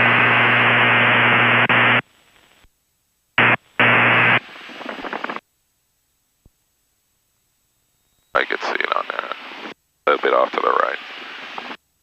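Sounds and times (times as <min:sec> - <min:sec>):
radio hiss and static: 0:00.0 - 0:02.7, 0:03.4 - 0:05.5, 0:08.4 - 0:11.8.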